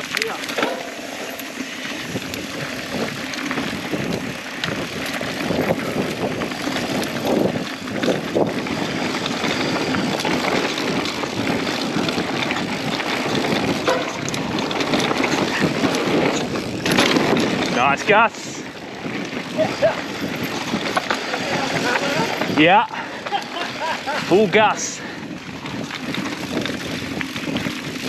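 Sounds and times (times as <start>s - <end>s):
bike rattling and knocking: 0.0s - 28.0s
tyres running on dirt: 0.0s - 28.0s
wind rushing over microphone: 0.6s - 23.3s, 24.0s - 28.0s.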